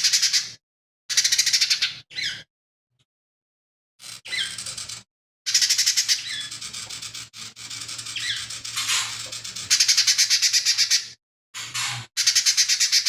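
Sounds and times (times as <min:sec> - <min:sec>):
bird singing rattling trills: 0:04.1 - 0:13.0.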